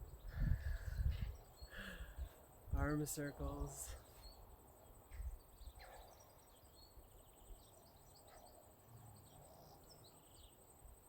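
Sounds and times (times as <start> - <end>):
faint bird chirps: 3.1 - 10.7.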